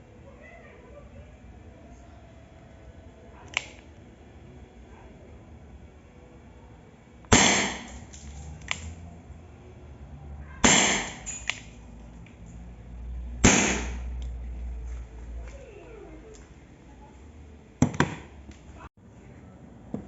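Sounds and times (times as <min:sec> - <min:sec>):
air revolver shots popping: 0:07.3 - 0:08.9, 0:10.6 - 0:11.7, 0:13.4 - 0:14.1.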